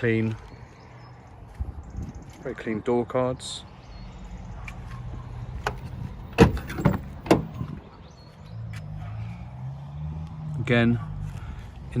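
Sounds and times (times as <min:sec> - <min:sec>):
door latch clicks: 0:05.6 - 0:07.6
car doors knocking: 0:05.7 - 0:07.8.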